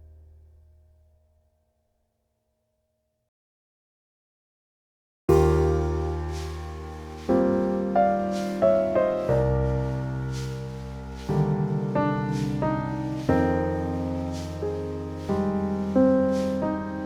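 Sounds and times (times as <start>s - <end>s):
gentle piano music: 5.3s - 17.0s.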